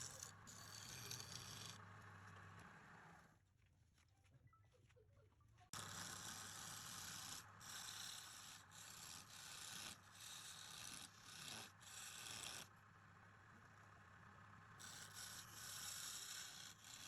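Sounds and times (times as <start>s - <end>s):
lathe tool rasping on wood: 0.0s - 1.8s, 5.8s - 12.7s, 14.8s - 17.0s
low motor hum: 0.0s - 3.4s, 11.1s - 17.0s.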